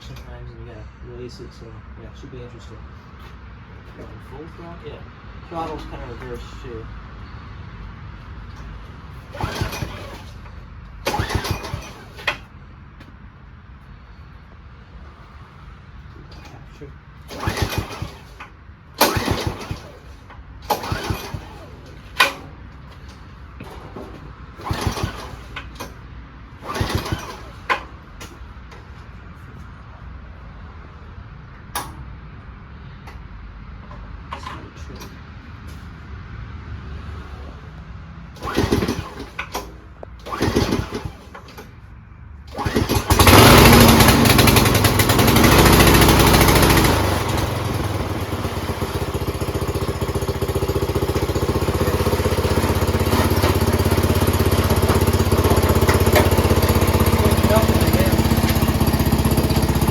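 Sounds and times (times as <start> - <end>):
small engine running loudly: 9.3 - 10.3, 17.3 - 18.4, 42.5 - 59.9
small engine cranking: 9.3 - 12.5, 17.2 - 26.0, 26.6 - 28.4, 38.4 - 41.7, 42.5 - 59.9.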